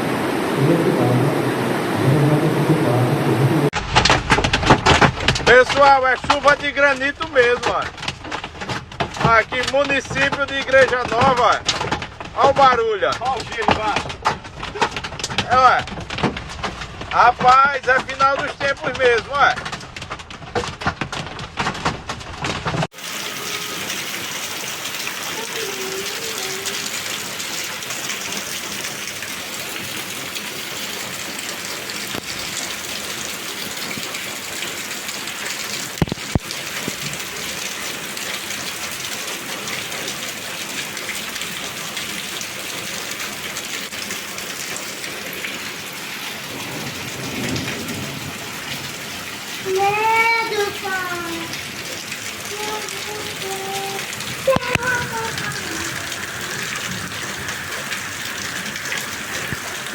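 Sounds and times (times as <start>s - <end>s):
heavy rain pouring: 0.0s - 59.9s
sharp knocks: 3.8s - 23.0s.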